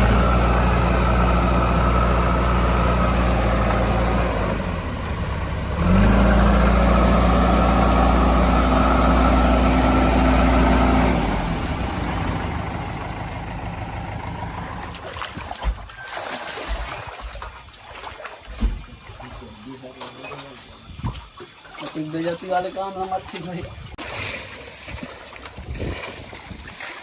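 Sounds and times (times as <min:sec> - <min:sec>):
diesel engine idling and revving: 0:00.0 - 0:15.4.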